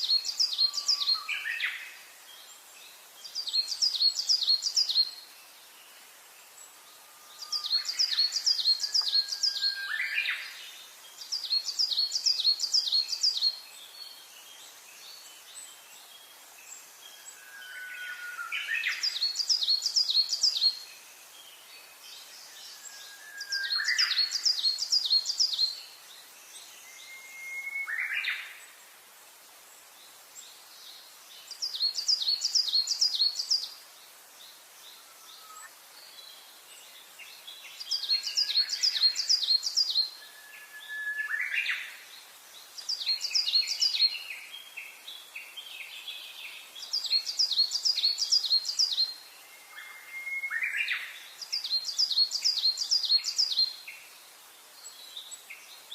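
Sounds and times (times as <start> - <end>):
faint background hiss: 0.0 - 55.9
songbird singing: 0.0 - 55.9.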